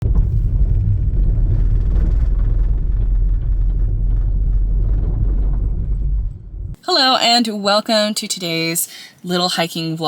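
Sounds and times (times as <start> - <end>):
low rumble inside car: 0.0 - 6.8.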